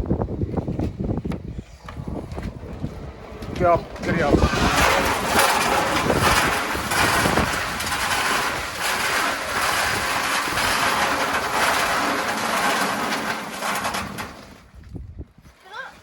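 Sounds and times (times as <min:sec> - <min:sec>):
ice cubes dropping from chute: 0:04.5 - 0:14.6.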